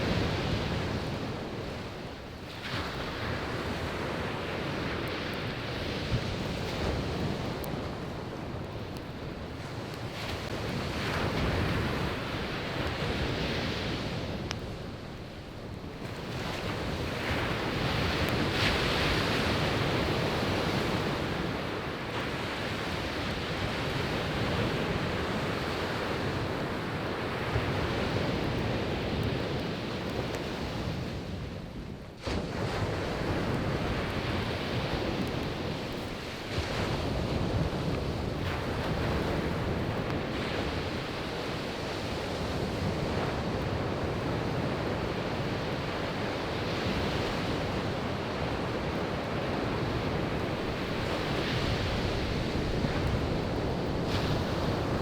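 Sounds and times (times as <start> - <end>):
wind buffeting microphone: 0.0 - 55.0
surf breaking on beach: 32.2 - 55.0.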